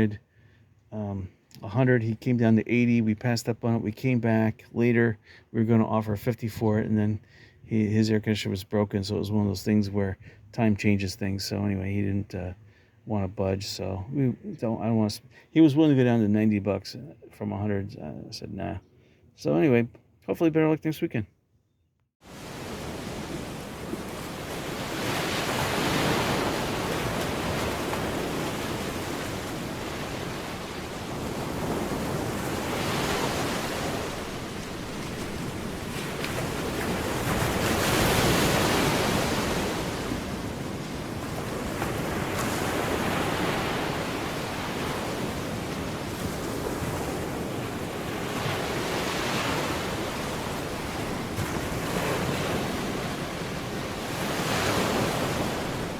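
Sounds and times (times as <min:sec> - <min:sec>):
ocean waves breaking: 0:22.2 - 0:55.9.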